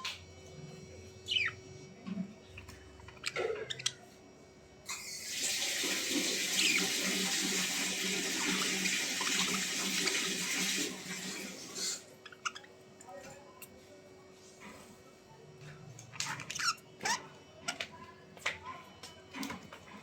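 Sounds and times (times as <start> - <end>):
running water rushing: 5.2 - 11.9.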